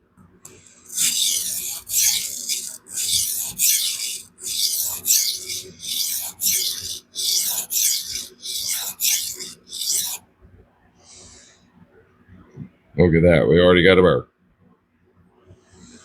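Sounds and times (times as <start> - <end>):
knife rasping on sharpening stone: 0.5 - 10.2.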